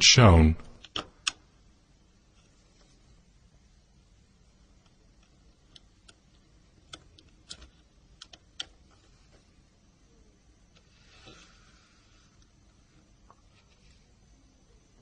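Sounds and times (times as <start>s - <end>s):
faint background hum: 0.0s - 15.0s.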